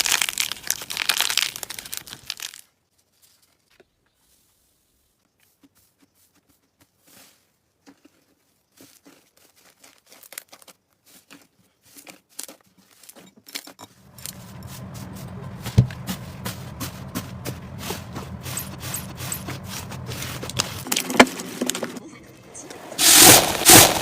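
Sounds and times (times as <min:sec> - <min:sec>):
steady low hum: 0:14.0 - 0:22.7
loud thump: 0:15.5 - 0:17.6.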